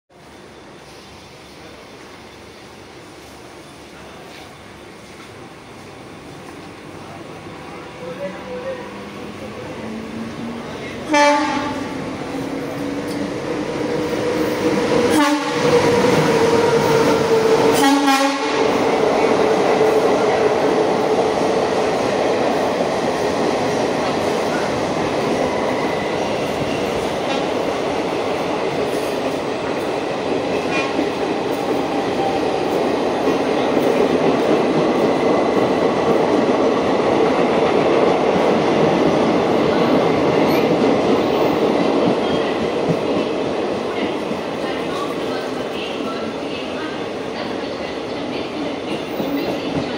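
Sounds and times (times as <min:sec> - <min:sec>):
train coaches rumbling: 0:00.1 - 0:49.9
train horn: 0:11.1 - 0:11.9, 0:15.1 - 0:15.9, 0:17.7 - 0:18.7.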